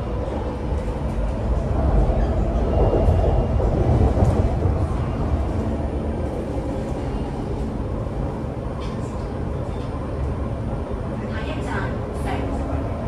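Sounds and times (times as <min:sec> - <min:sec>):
train wheels rumbling: 0:00.0 - 0:10.3.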